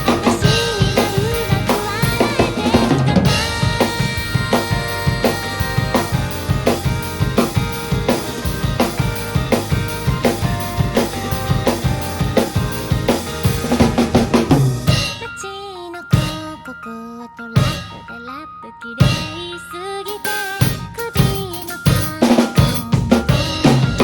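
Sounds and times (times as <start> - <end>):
drum kit beat: 0.0 - 15.4, 16.1 - 16.6, 17.6 - 18.1, 19.0 - 24.0
pop-rock band chords: 0.0 - 15.4, 20.1 - 24.0
held notes: 0.0 - 15.5.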